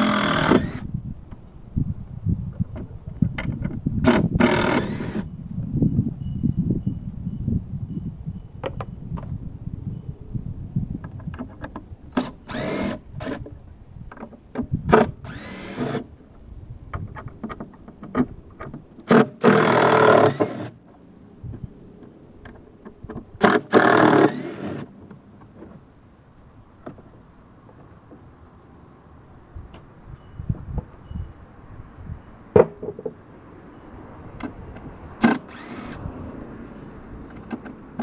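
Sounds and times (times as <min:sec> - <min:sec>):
power drill spinning out screws: 0:00.0 - 0:00.9, 0:04.1 - 0:05.3, 0:12.2 - 0:13.4, 0:15.2 - 0:16.1, 0:19.1 - 0:20.8, 0:23.4 - 0:24.9, 0:35.2 - 0:36.0.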